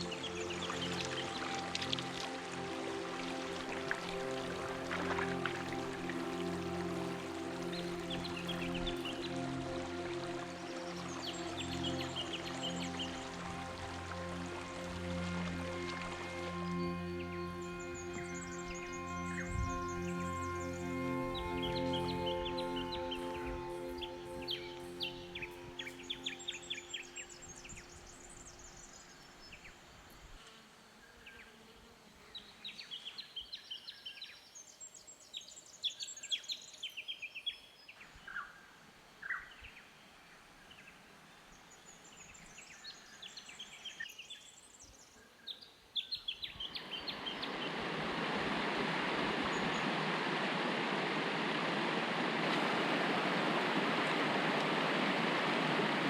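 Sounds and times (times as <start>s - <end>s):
water rushing over cascade: 0.0s - 28.8s, 46.6s - 56.0s
birds chirping and trilling: 0.0s - 30.0s, 41.6s - 48.0s.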